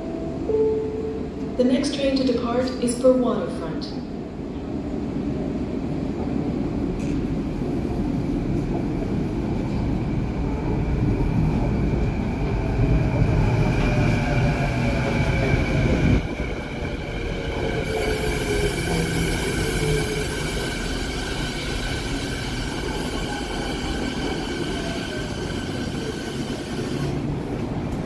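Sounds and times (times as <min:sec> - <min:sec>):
train rumble: 0:00.0 - 0:28.0.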